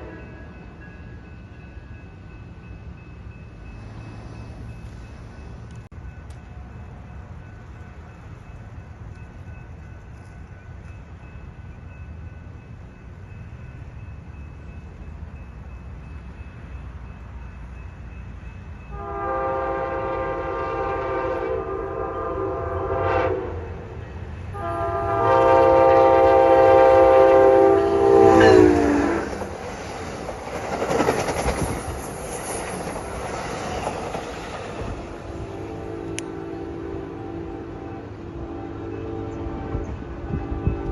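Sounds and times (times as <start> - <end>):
train horn blasts: 0.0 - 0.6, 18.8 - 29.4, 35.2 - 40.9
train rumble and wheel clatter: 0.0 - 40.9.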